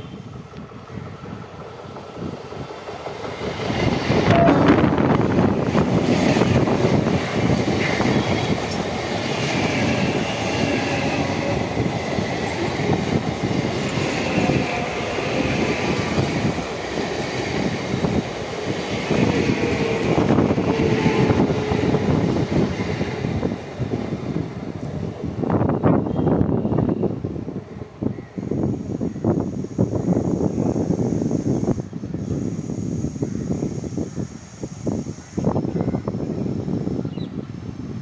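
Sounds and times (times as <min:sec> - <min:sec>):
train wheels clattering on rails: 0:00.4 - 0:25.1.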